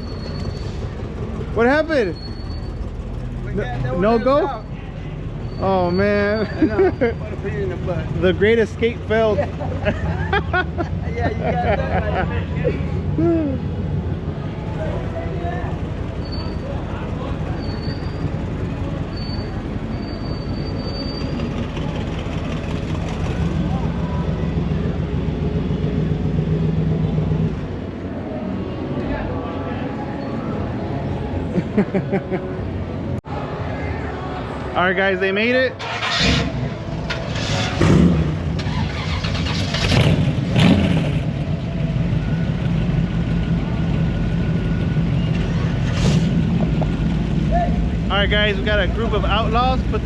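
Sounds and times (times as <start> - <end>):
car engines rumbling: 0.0 - 50.0
engine revving surges: 35.8 - 42.0, 44.4 - 50.0.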